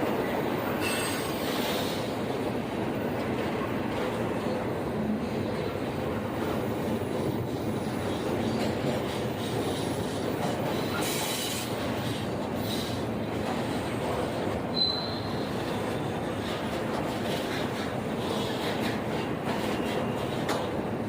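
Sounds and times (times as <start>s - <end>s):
train wheels rumbling on rails: 0.0s - 21.0s
faint high wheel squeal: 0.8s - 1.8s, 14.7s - 16.4s.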